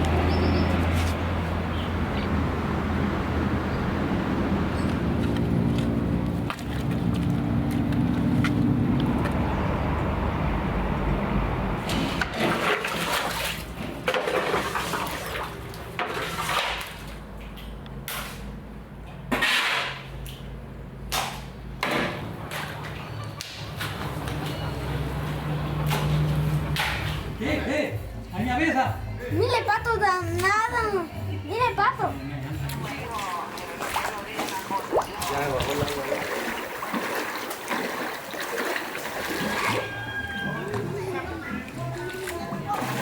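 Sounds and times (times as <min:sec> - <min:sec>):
water rushing and splashing: 0:00.0 - 0:17.5, 0:32.6 - 0:43.0.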